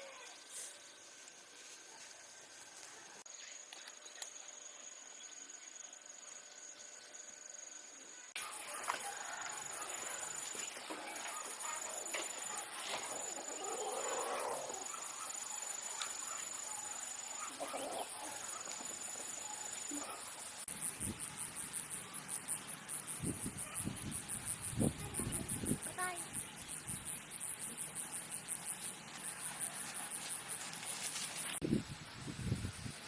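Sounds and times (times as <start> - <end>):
insects trilling: 3.3 - 33.0
soft rustles: 28.7 - 31.6.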